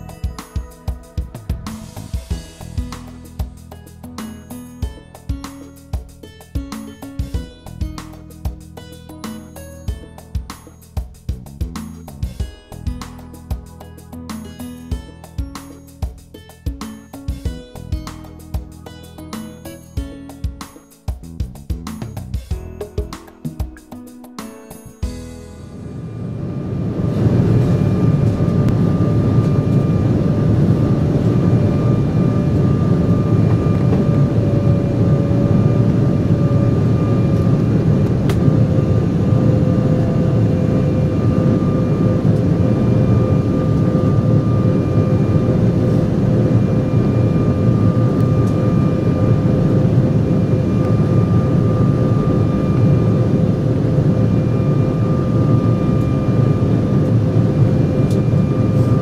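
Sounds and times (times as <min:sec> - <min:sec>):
steady engine whine: 0:00.0 - 0:10.8, 0:25.0 - 0:59.0
airliner cabin engine rush: 0:25.4 - 0:59.0.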